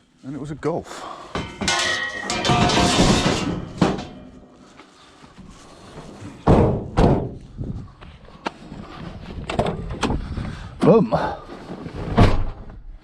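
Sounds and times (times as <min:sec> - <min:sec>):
scrap metal clattering: 0:01.4 - 0:04.6.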